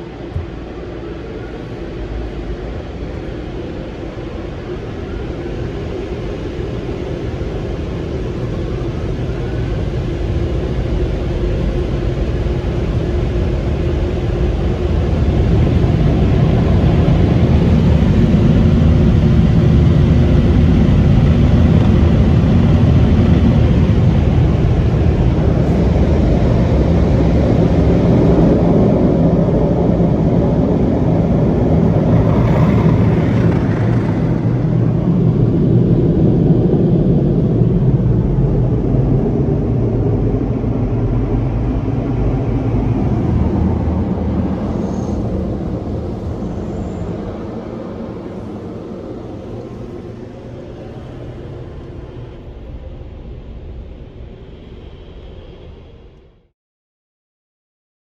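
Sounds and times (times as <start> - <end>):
car wash machine rushing rumble: 12.1 - 37.2.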